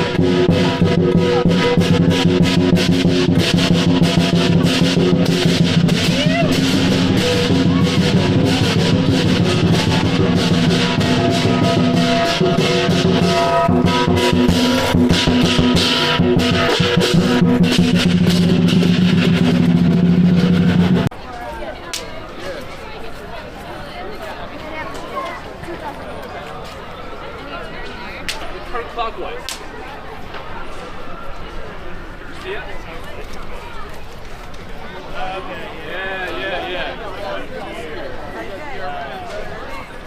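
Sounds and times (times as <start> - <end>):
drum beaten fast: 0.0 - 21.1
rapid clashing cymbals: 0.0 - 21.1
ringing gong: 0.0 - 21.1.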